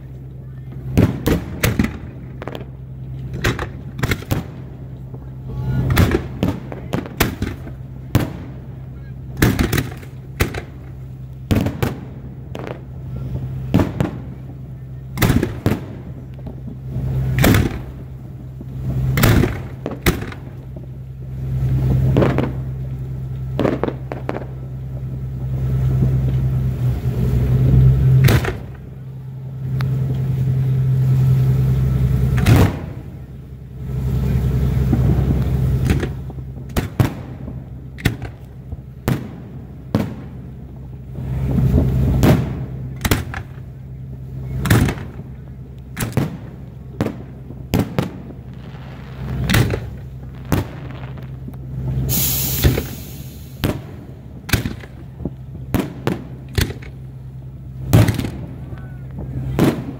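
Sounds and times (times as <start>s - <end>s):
low steady hum: 0.0s - 59.9s
firework shells bursting: 5.8s - 13.0s, 13.7s - 26.5s, 34.8s - 40.6s, 41.2s - 43.8s, 44.5s - 57.2s, 57.8s - 59.9s.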